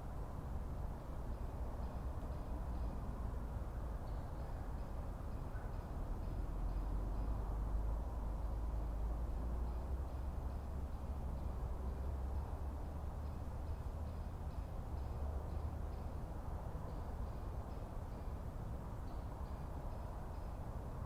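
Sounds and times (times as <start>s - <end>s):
soft background noise: 0.0s - 21.0s.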